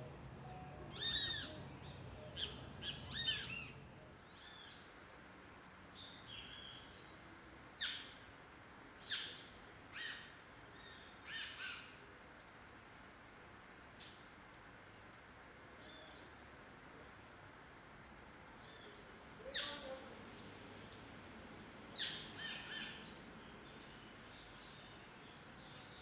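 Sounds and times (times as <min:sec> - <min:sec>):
birds calling: 0:00.9 - 0:04.9, 0:21.9 - 0:26.0.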